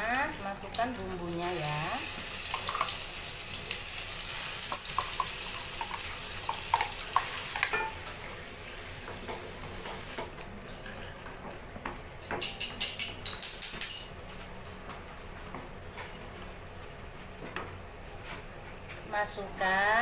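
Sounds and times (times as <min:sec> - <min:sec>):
spice paste sizzling in oil: 0:00.0 - 0:10.3.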